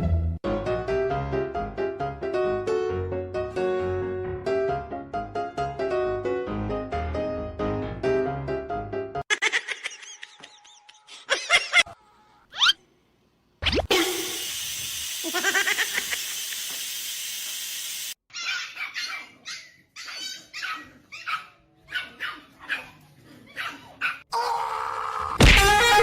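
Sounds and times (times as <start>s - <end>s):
dog barking and yelping: 18.3s - 24.3s.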